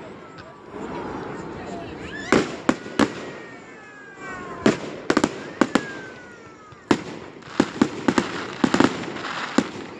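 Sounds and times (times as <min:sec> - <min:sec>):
falling firework whistles: 0:02.1 - 0:09.9
firework bangs: 0:02.1 - 0:09.9.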